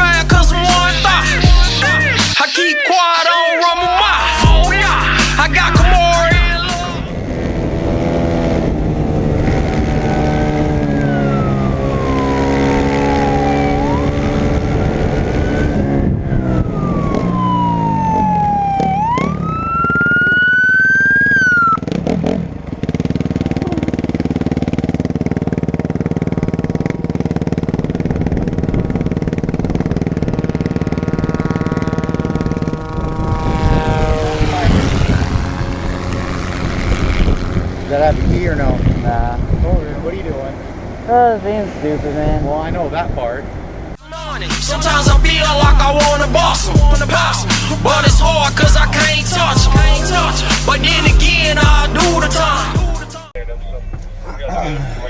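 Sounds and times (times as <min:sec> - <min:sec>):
motorcycle engine revving: 0:00.0 - 0:02.4, 0:03.7 - 0:55.0
police siren wailing: 0:00.0 - 0:07.2, 0:09.8 - 0:22.0, 0:30.9 - 0:37.8, 0:44.0 - 0:54.8.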